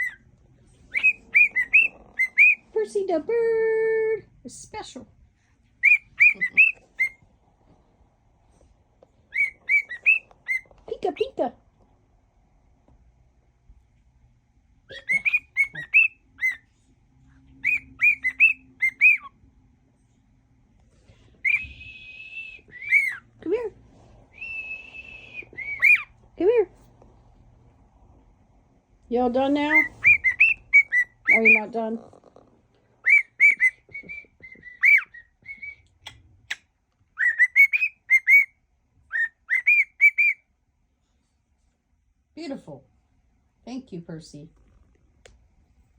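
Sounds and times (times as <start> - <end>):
cockatiel whistling a tune: 0.9 - 2.6, 5.8 - 7.2, 9.3 - 10.7, 14.9 - 16.6, 17.6 - 19.3, 21.4 - 23.2, 24.3 - 26.1, 29.7 - 31.6, 33.0 - 36.6, 37.2 - 38.5, 39.1 - 40.4.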